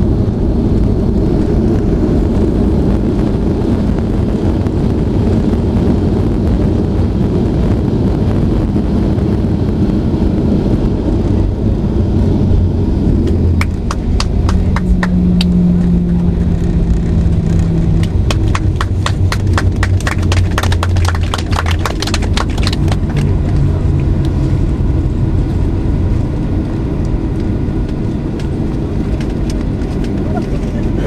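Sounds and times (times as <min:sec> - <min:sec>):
airplane cabin rumble: 0:00.0 - 0:31.0
steady hum: 0:00.0 - 0:31.0.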